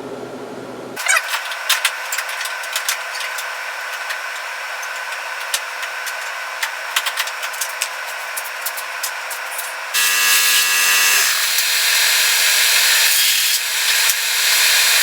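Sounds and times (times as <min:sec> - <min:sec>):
power tool whining on metal: 0:08.3 - 0:15.0.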